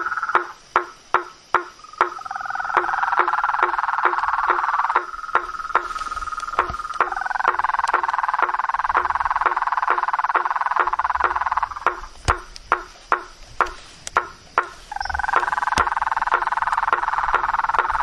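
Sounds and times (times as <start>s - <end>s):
frogs trilling chorus: 0.0s - 18.0s
sharp clicking call: 0.0s - 18.0s.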